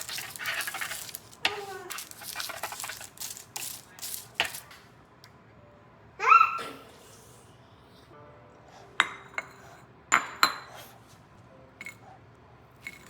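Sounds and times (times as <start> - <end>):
rustling and clicking handling noise: 0.0 - 4.9.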